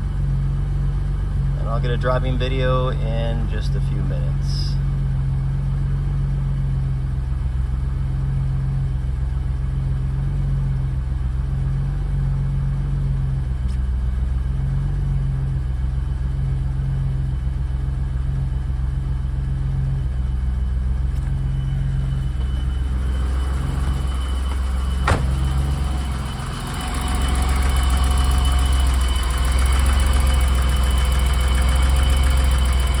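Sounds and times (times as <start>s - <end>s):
car engine idling: 0.0s - 33.0s
high whine: 1.5s - 4.8s, 20.6s - 33.0s.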